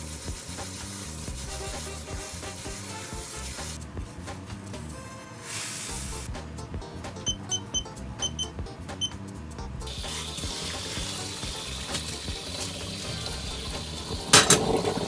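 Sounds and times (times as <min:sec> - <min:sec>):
tap water running: 0:00.0 - 0:03.8, 0:09.9 - 0:15.0
light background music: 0:00.2 - 0:15.0.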